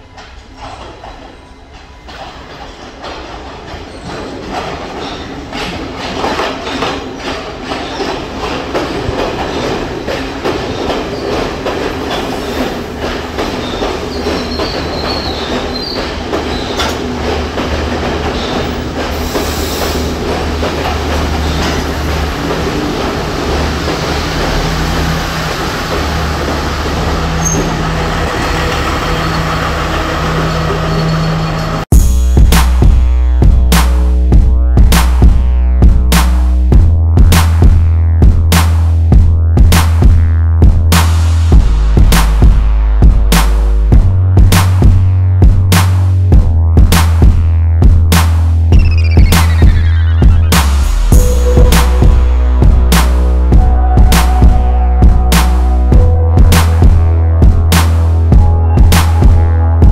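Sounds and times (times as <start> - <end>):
train wheels running over track: 0.0 - 59.9
background music with a beat: 31.9 - 59.9.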